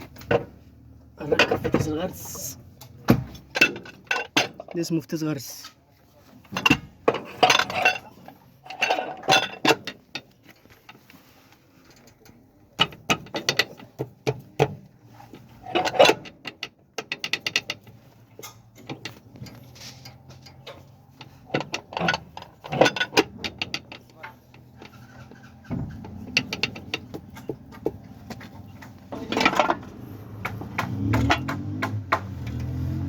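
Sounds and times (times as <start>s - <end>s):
metal tools clinking: 1.2s - 5.8s, 6.4s - 11.0s, 15.3s - 30.2s.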